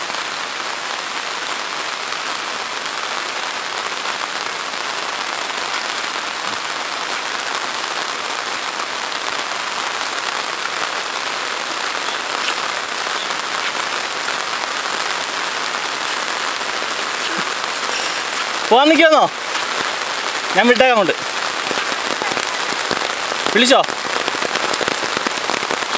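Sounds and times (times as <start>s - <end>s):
heavy rain on road and foliage: 0.0s - 25.9s.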